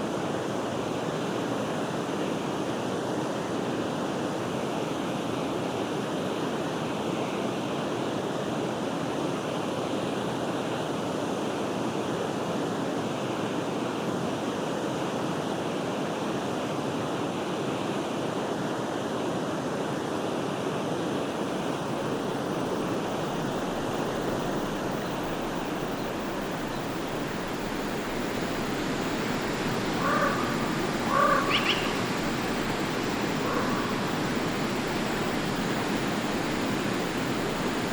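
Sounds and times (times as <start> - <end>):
stream flowing: 19.8 - 37.9
bird short calls: 30.0 - 32.1.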